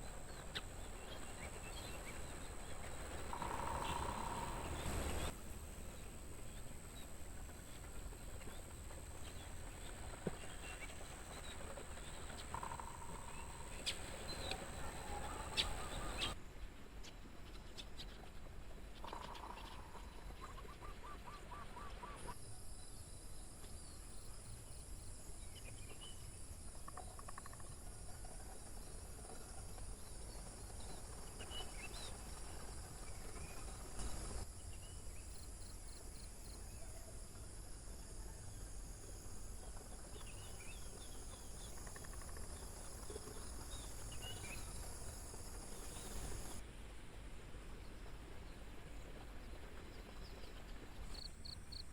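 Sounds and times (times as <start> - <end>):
crickets and insects trilling: 0.0 - 8.6, 22.4 - 46.6, 51.1 - 51.9.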